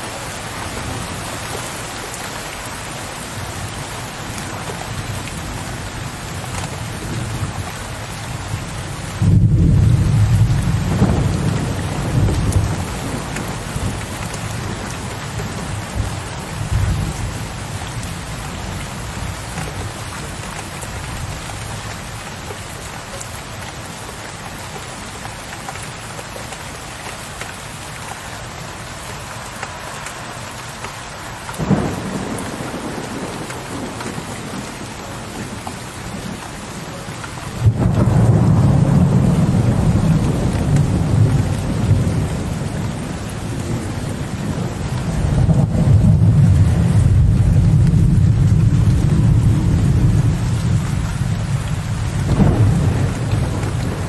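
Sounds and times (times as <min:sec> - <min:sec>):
steady rain: 0:00.0 - 0:54.0
thunder rumbling: 0:08.6 - 0:19.3, 0:31.6 - 0:36.4, 0:37.5 - 0:54.0
sharp thunder crack: 0:52.2 - 0:54.0.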